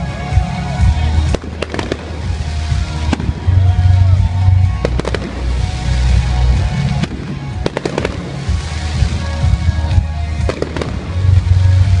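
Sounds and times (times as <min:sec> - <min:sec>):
loud music with heavy bass: 0:00.0 - 0:12.0
firework shells bursting: 0:04.8 - 0:11.4.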